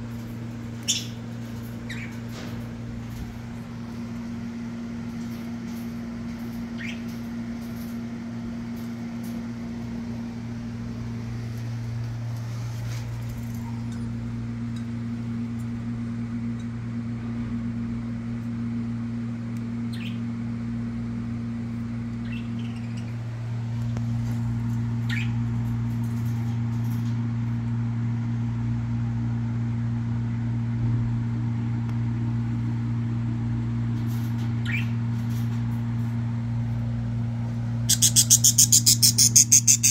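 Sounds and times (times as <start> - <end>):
steady low hum: 0.0 - 39.9
budgerigar chirps: 37.9 - 39.9.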